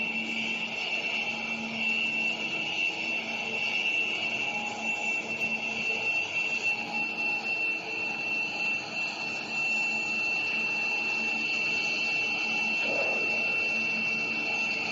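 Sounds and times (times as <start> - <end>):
high-pitched whine: 0.0 - 14.9
metal being machined: 4.6 - 14.9.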